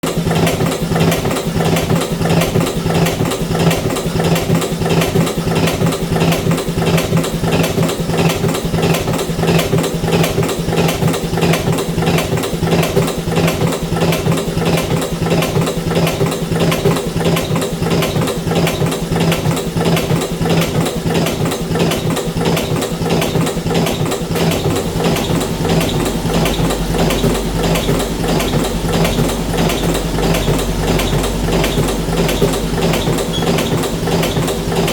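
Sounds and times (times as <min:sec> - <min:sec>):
fast even mechanical clatter: 0:00.0 - 0:34.9
machine motor hum: 0:12.0 - 0:34.9
deep hum: 0:24.2 - 0:34.9.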